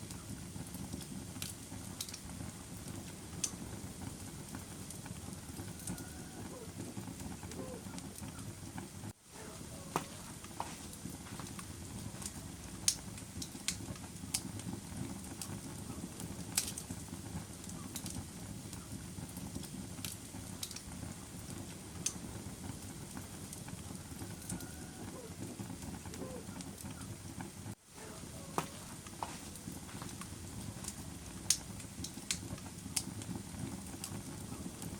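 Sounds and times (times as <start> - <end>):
fire crackles and pops: 0.0 - 34.9
flames rushing: 0.0 - 34.9.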